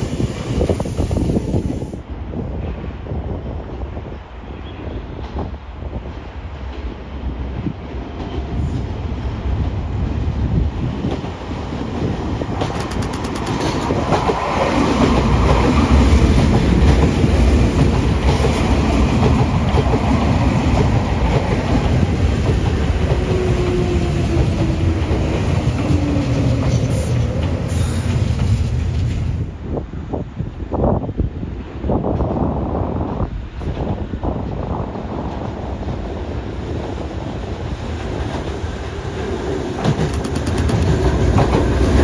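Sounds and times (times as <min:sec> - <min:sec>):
electric train passing: 0:00.0 - 0:42.0
wheels clacking over rail joints: 0:11.1 - 0:23.8, 0:38.2 - 0:42.0.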